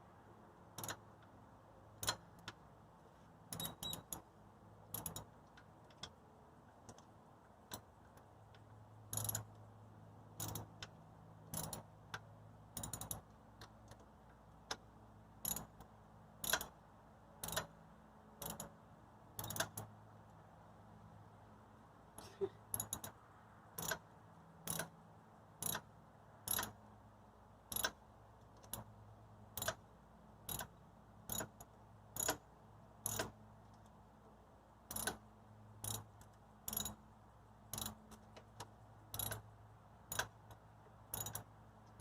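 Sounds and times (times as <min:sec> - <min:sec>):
ratchet wrench clicking: 0:00.8 - 0:01.1, 0:03.5 - 0:04.3, 0:04.9 - 0:06.1, 0:07.7 - 0:09.6, 0:10.3 - 0:14.0, 0:15.4 - 0:16.8, 0:17.4 - 0:17.8, 0:18.4 - 0:18.8, 0:19.4 - 0:19.9, 0:22.7 - 0:23.2, 0:23.8 - 0:24.9, 0:25.6 - 0:25.9, 0:26.5 - 0:26.8, 0:27.7 - 0:28.0, 0:29.6 - 0:29.8, 0:30.5 - 0:32.4, 0:33.0 - 0:33.4, 0:34.9 - 0:35.2, 0:35.8 - 0:37.0, 0:37.7 - 0:39.5, 0:40.1 - 0:42.0.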